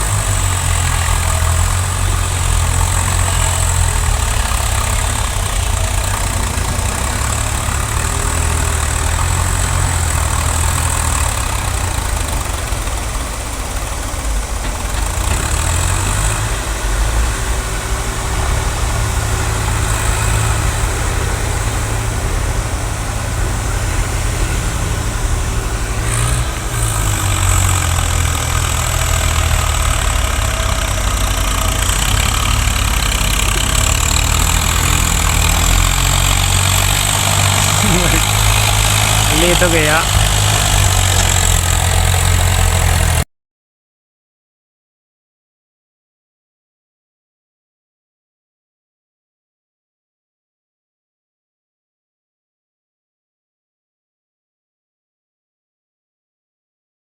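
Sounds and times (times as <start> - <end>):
tractor diesel engine running: 0.0 - 43.2.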